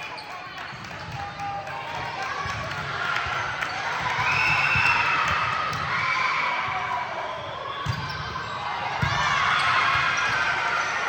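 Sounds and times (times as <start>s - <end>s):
voices in a hall: 0.0s - 11.0s.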